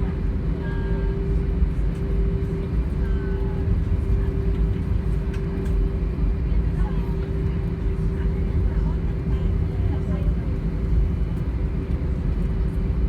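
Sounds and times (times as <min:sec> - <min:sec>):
aircraft engines and wheels rumbling: 0:00.0 - 0:13.0
constant hum: 0:00.0 - 0:13.0.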